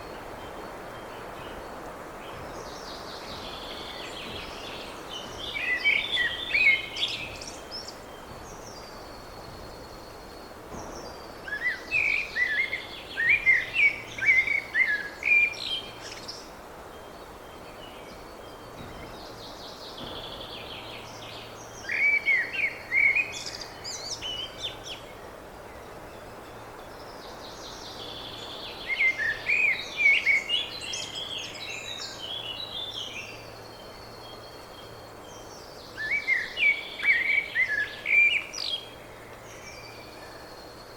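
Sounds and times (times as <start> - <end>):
songbird chirping: 0.0 - 40.9.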